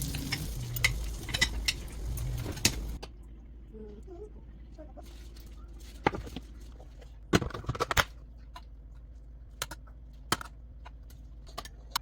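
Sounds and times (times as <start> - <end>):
utensils knocking against dishes: 0.0 - 3.0
low steady hum: 0.0 - 12.0.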